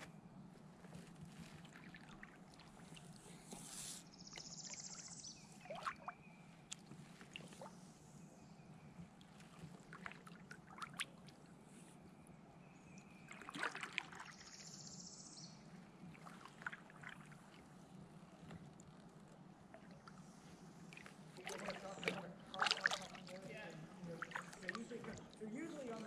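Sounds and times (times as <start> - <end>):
kayak paddle dipping and dripping: 0.9 - 11.7, 12.6 - 26.0
light knocks and splashes: 5.6 - 7.7, 9.1 - 11.4, 13.2 - 14.4, 21.0 - 26.0.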